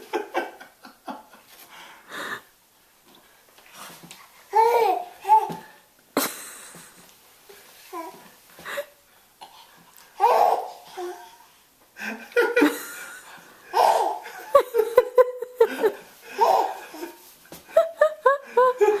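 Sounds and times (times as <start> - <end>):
baby laughing: 4.6 - 5.7, 10.2 - 11.4, 13.7 - 17.2.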